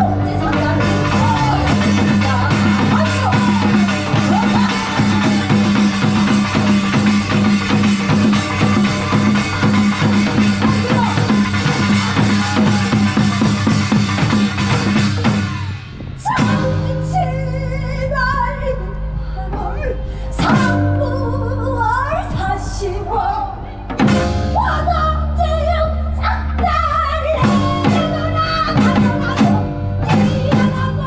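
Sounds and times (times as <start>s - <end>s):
low bass drone: 0.0s - 15.6s
drum kit beating: 0.0s - 17.2s, 23.9s - 24.9s, 27.3s - 31.0s.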